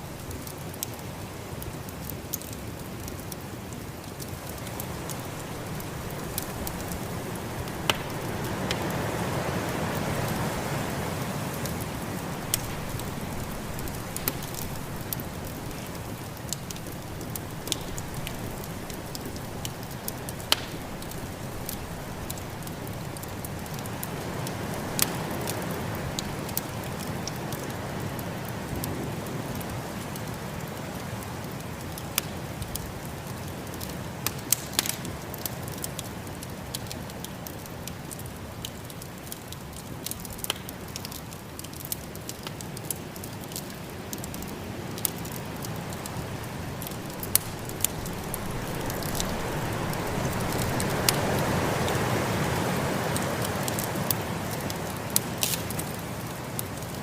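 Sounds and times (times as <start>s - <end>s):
wood fire crackling and popping: 0.0s - 57.0s
rushing wind: 4.4s - 29.9s, 45.4s - 54.4s.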